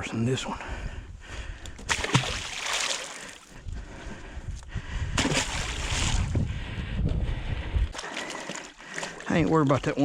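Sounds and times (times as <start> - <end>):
water splashing and sloshing: 1.8 - 3.6, 5.2 - 6.5, 7.8 - 10.0.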